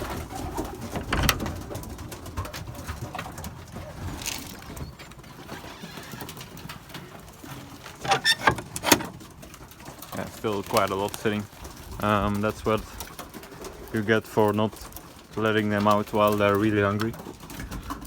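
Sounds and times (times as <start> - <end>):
pigeons cooing: 0.0 - 18.0.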